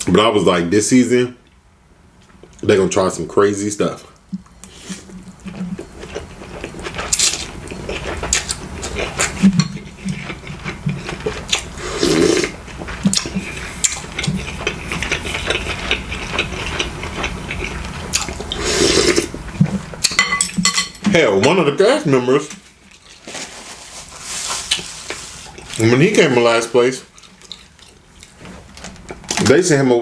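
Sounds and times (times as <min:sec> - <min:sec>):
close chewing with wet clicks: 0:04.2 - 0:11.7, 0:12.6 - 0:18.5, 0:27.1 - 0:28.4.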